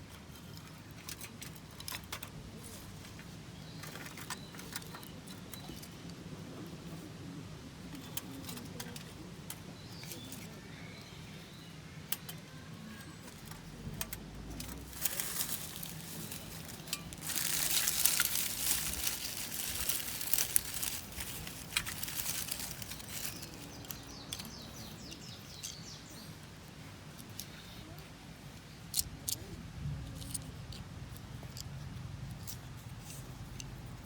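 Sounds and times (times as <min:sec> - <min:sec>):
kindling and gear rustling: 0:14.5 - 0:24.0.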